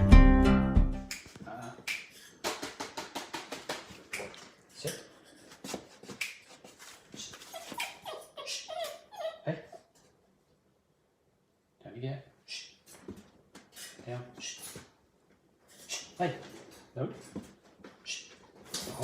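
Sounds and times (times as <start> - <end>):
puppies whining and yipping: 7.4 - 9.9.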